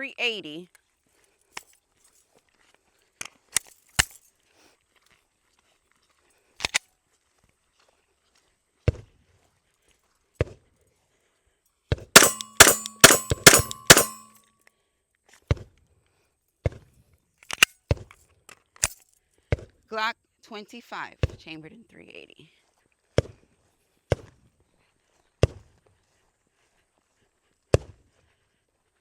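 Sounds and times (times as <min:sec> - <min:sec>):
gun handling clicks: 0:06.6 - 0:06.8, 0:12.2 - 0:14.3, 0:17.4 - 0:17.8
pistol shots: 0:12.2 - 0:14.3
metallic ringing: 0:12.2 - 0:14.4.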